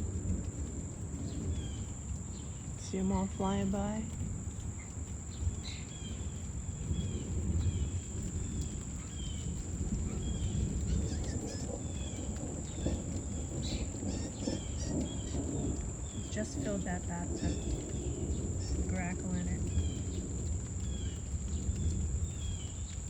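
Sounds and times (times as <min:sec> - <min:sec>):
insect drone: 0:00.0 - 0:23.0
low uneven rumble: 0:00.0 - 0:23.0
bird chirps: 0:12.8 - 0:20.1.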